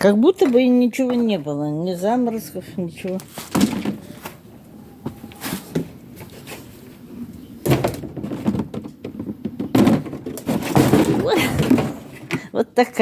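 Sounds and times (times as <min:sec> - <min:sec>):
scuffling: 0:00.0 - 0:12.4
frost covers rustling and scraping: 0:02.4 - 0:07.4.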